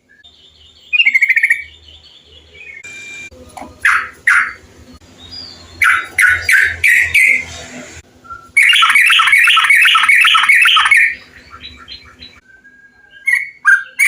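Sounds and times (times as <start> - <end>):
bulbul chirping: 0.3 - 1.8, 5.2 - 7.4, 8.4 - 12.4.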